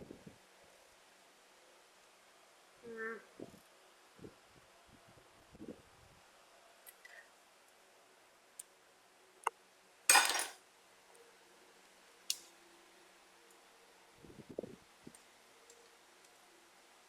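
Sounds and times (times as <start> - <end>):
metal parts clattering: 10.1 - 10.6.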